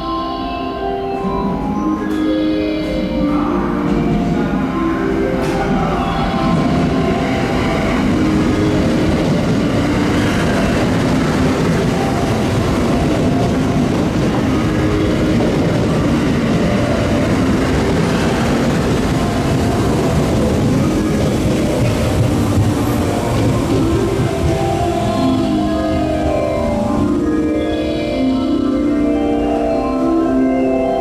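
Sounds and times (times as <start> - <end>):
train wheels rolling on rails: 1.5 - 31.0.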